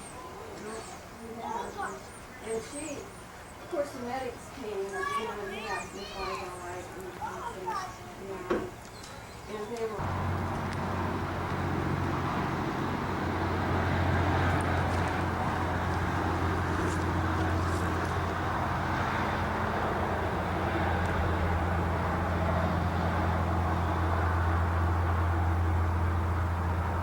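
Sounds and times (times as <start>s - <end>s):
tyre and road noise: 7.2s - 27.0s
car engine drone: 10.0s - 27.0s.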